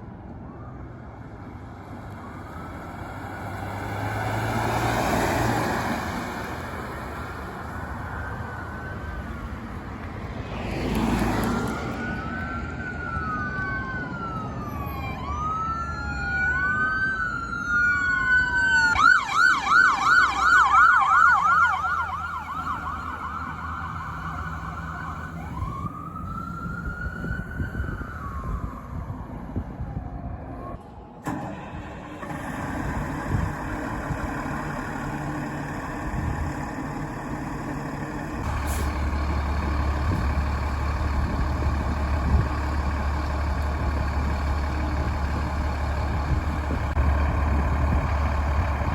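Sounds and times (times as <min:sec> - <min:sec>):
electronic siren wailing and yelping: 0:12.0 - 0:29.0.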